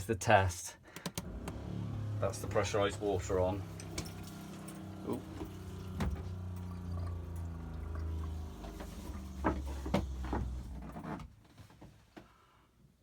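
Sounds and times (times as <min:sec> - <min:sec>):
water pump humming: 0:01.2 - 0:11.0.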